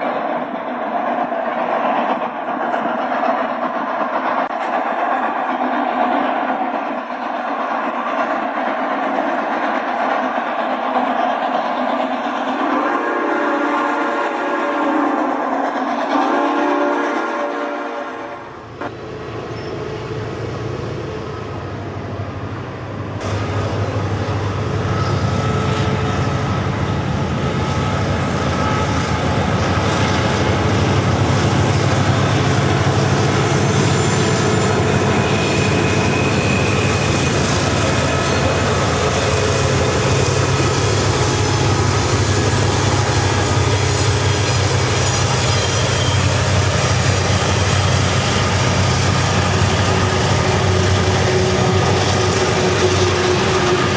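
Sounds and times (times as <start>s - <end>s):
model locomotive engine rumble: 23.2s - 53.9s.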